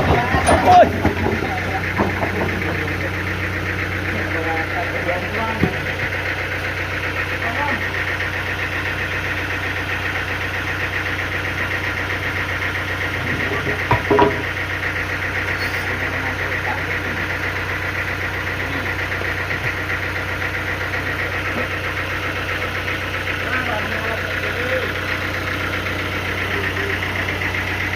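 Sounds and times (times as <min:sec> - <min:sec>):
sawmill machinery droning: 0:00.0 - 0:27.9
knocks: 0:13.6 - 0:14.5.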